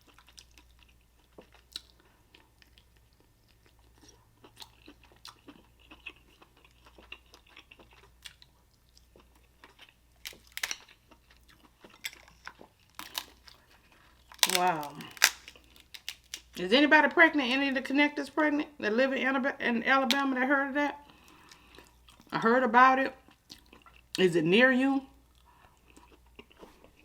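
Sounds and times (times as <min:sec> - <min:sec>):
chewing and mouth sounds: 0:00.0 - 0:16.6
shells clicking and cracking: 0:10.2 - 0:10.9, 0:12.0 - 0:13.4, 0:14.3 - 0:16.6.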